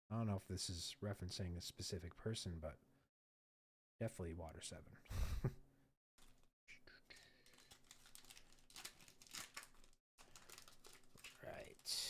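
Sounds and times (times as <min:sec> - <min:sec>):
foil pack crinkling: 0:06.2 - 0:06.5, 0:07.1 - 0:12.0.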